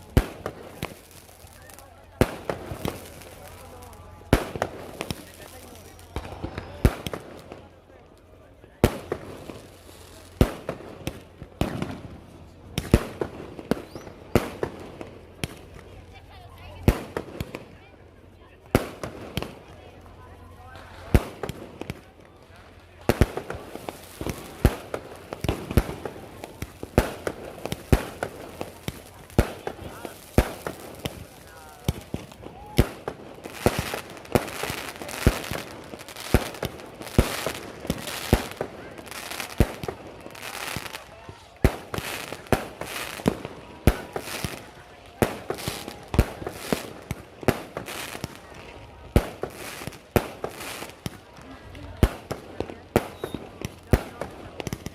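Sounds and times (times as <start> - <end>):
fireworks banging: 0.0 - 7.8, 8.7 - 17.8, 18.6 - 19.9, 20.6 - 54.9
firecracker pops: 4.3 - 7.6, 10.3 - 12.1, 12.7 - 15.9, 23.0 - 48.5, 49.1 - 54.9.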